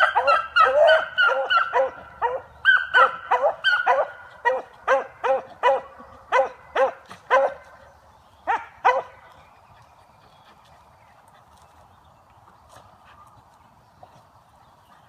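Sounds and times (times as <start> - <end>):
hound barking: 0.0 - 7.7, 8.5 - 9.2.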